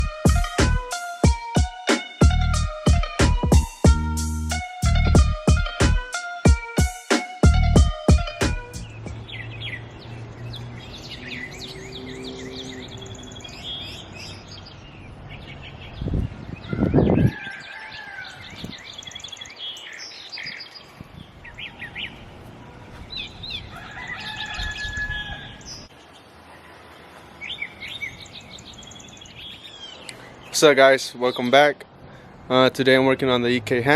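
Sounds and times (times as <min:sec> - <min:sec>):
songbirds chirping: 0:07.2 - 0:33.9.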